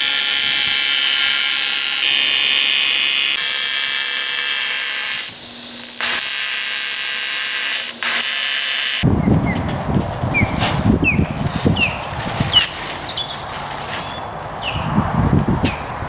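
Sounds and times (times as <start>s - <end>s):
low wind rumble: 9.0s - 16.0s.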